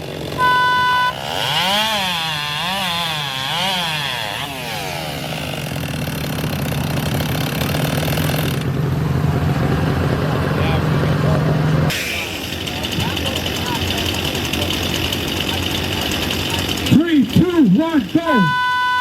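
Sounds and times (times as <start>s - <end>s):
chainsaw cutting log: 0.0s - 8.8s, 11.9s - 18.4s
electronic beep: 0.4s - 1.2s, 18.3s - 19.0s.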